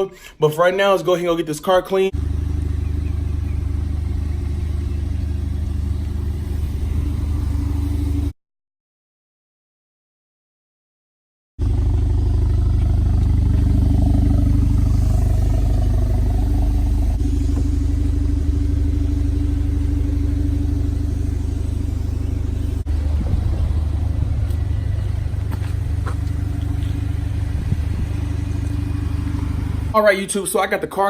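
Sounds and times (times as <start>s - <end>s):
car engine running: 2.1s - 8.3s, 11.6s - 30.2s.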